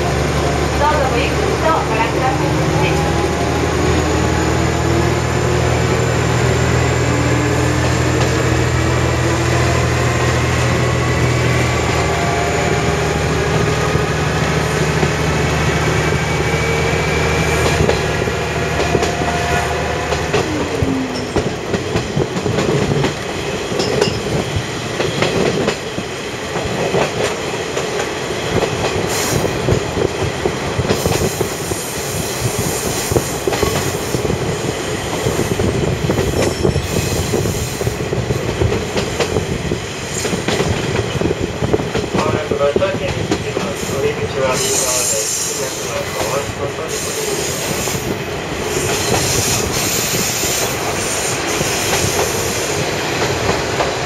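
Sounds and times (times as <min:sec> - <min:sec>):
train wheels clattering: 0:35.1 - 0:54.0
train wheel squeal: 0:35.2 - 0:38.0, 0:43.7 - 0:52.9.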